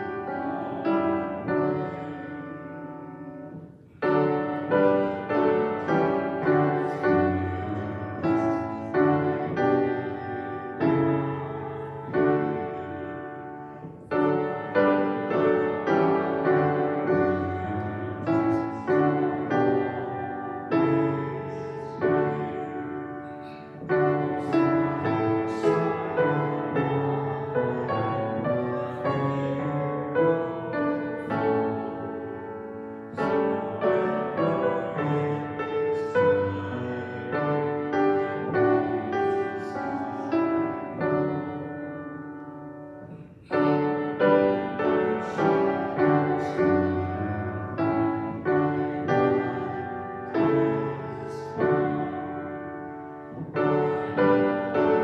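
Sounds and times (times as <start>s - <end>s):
piano playing hymn: 0.0s - 55.0s.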